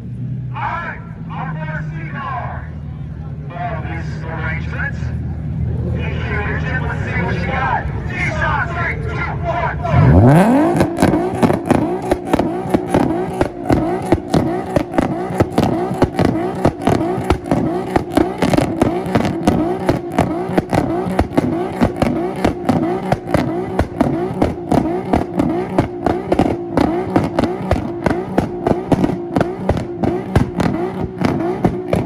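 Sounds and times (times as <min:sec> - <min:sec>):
car engine on rev limiter: 0:04.0 - 0:32.0
exhaust pops and bangs: 0:10.0 - 0:32.0.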